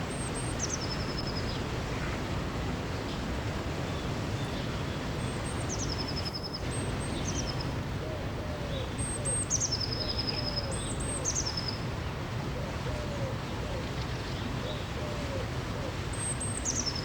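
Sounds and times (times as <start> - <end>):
river rushing: 0.0 - 17.0
birds singing: 3.9 - 11.9, 16.1 - 17.0.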